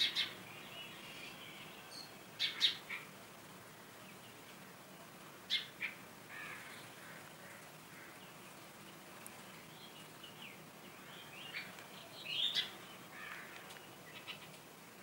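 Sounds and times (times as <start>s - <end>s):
short bird calls: 0.0s - 3.1s, 9.9s - 14.6s.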